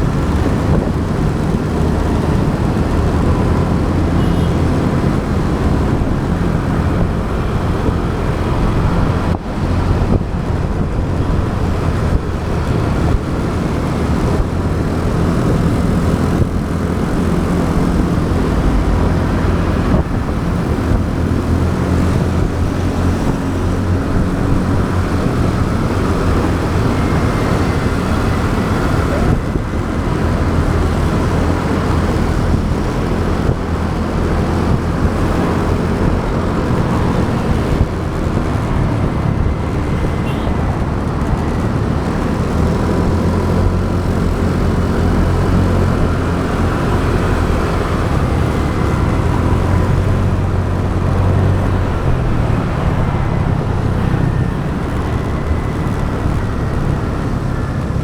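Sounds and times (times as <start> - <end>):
motorbike engine rumble: 0.0 - 58.0
surrounding traffic: 0.0 - 58.0
wind: 0.0 - 58.0.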